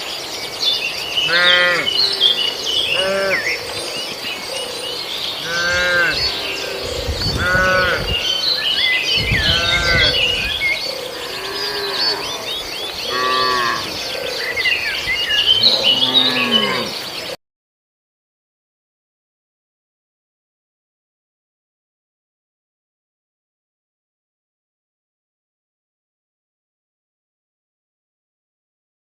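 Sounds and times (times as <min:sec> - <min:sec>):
small birds chirping: 0:00.0 - 0:17.4
cattle mooing: 0:01.2 - 0:02.0, 0:02.9 - 0:03.5, 0:05.4 - 0:08.6, 0:09.3 - 0:10.5, 0:11.1 - 0:14.0, 0:15.5 - 0:17.0.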